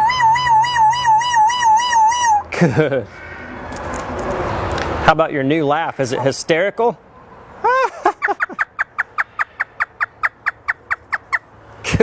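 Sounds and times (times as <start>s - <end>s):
parrot imitating laughter: 7.6s - 11.4s.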